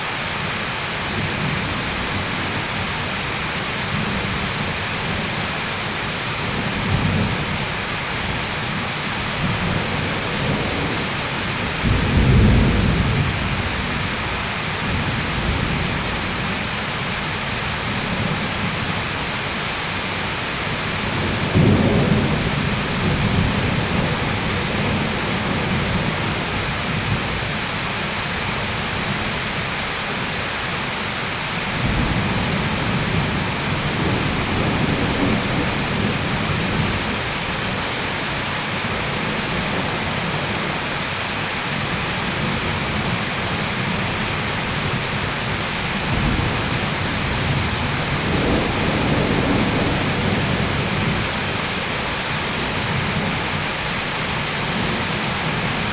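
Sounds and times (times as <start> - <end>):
heavy rain hiss: 0.0 - 55.9
thunder rolling: 9.4 - 16.0, 44.8 - 51.4.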